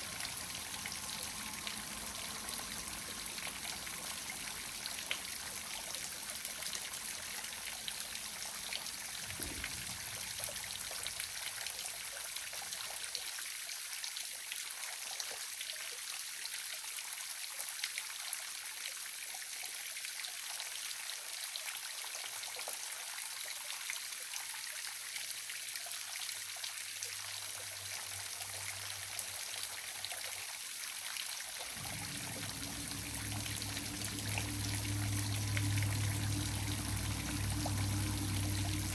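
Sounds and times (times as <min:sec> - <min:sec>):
waterfall rushing: 0:00.0 - 0:05.7, 0:31.7 - 0:38.9.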